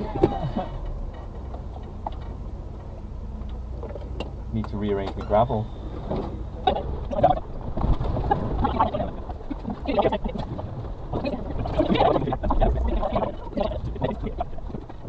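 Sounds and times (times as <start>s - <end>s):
knocks creaks and rattles: 0.0s - 15.0s
low engine drone: 0.0s - 15.0s.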